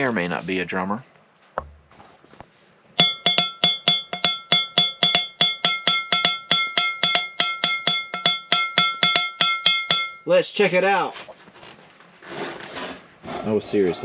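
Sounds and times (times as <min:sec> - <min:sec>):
drumming on ringing metal: 0:03.0 - 0:10.3.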